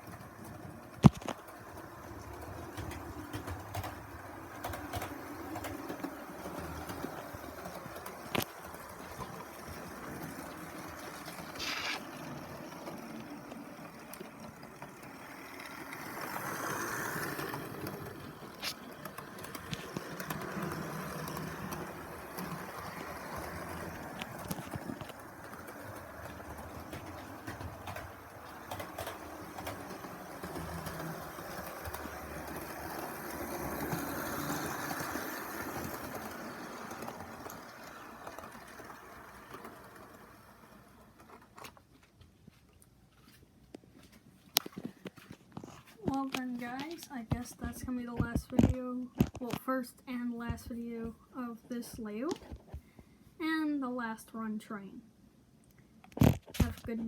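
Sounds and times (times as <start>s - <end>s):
model train motor and wheel rumble: 0.0s - 41.9s
wheels clicking on rails: 0.0s - 42.2s.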